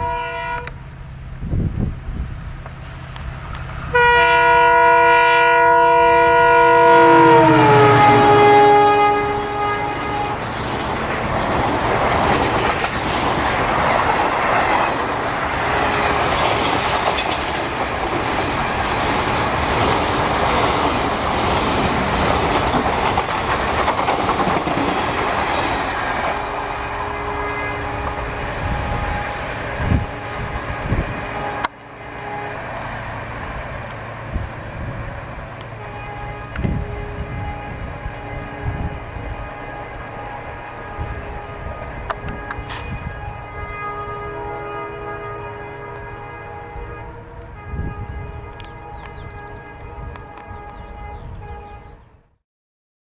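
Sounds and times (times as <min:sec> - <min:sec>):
train horn: 0:00.0 - 0:00.9, 0:03.8 - 0:13.0, 0:13.9 - 0:52.3
train wheels clattering on rails: 0:10.3 - 0:27.0, 0:42.0 - 0:43.1.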